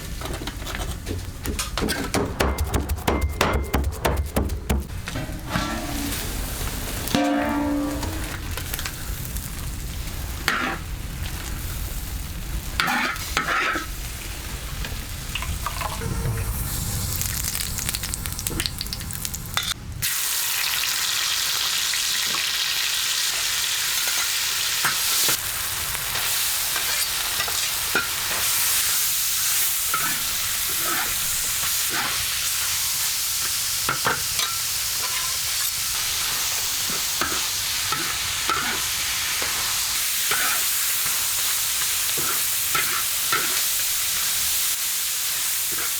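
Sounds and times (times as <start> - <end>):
utensil scraping a pan: 0.2 - 8.8, 10.5 - 10.9, 12.8 - 13.9, 29.9 - 32.3, 36.0 - 44.4
food sizzling in a pan: 5.0 - 45.9.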